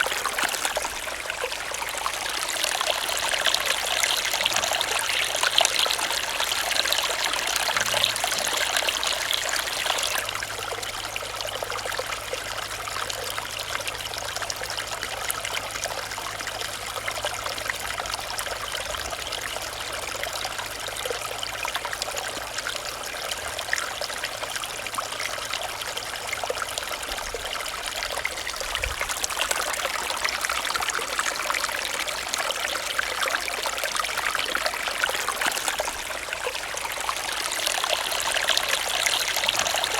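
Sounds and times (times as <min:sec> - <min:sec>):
stream trickling over stones: 0:00.0 - 0:39.9.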